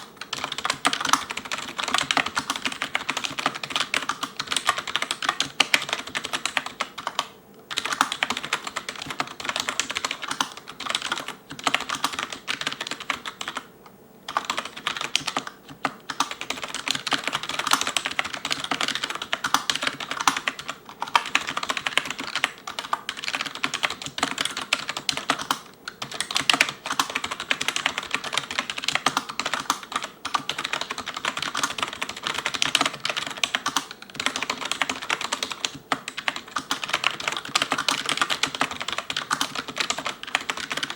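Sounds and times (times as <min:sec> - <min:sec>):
fast typing on keyboard: 0:00.0 - 0:13.7, 0:14.3 - 0:40.9.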